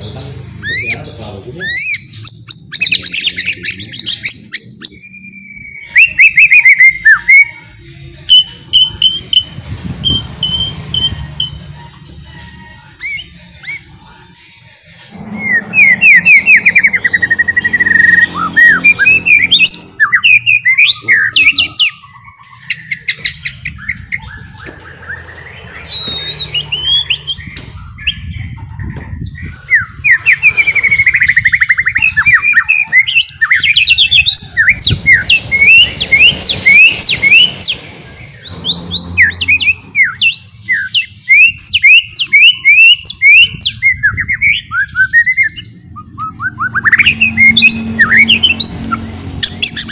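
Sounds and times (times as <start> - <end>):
songbird whistling: 1.6 - 7.6, 8.3 - 11.7, 12.7 - 13.9, 15.1 - 28.3, 29.2 - 49.9
bird rapid chatter: 15.1 - 44.7, 46.7 - 49.9.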